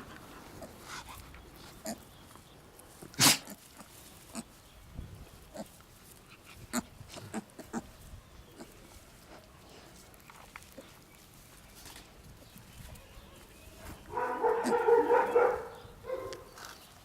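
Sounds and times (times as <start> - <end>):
piglet and dog sounds: 0.0 - 4.6, 5.4 - 11.1, 13.8 - 17.0.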